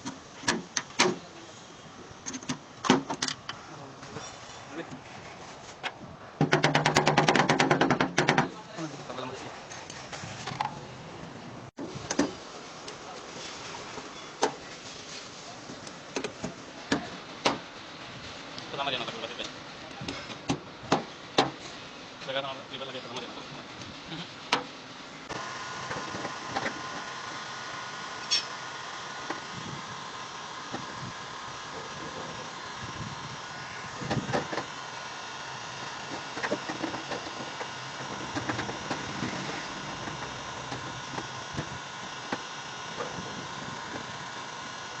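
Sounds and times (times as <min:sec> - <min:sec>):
steady background hum: 0:00.0 - 0:45.0.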